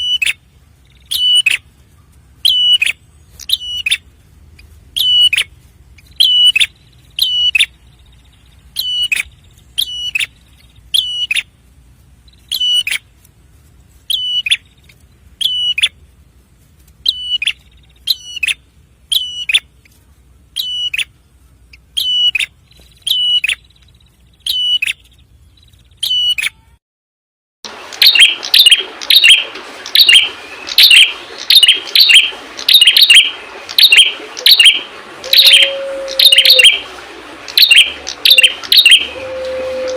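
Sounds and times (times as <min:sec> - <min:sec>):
background noise: 0:00.0 - 0:26.8
bird giving sharp high calls: 0:28.0 - 0:36.8, 0:37.6 - 0:39.9.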